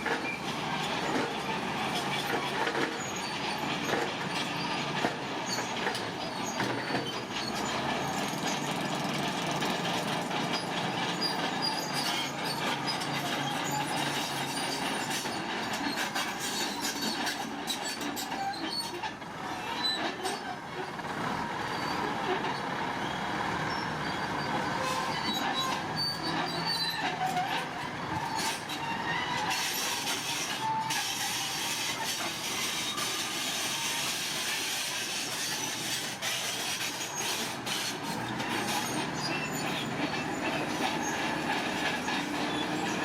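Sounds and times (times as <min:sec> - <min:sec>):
metallic squealing: 0:10.5 - 0:19.0, 0:23.7 - 0:43.0.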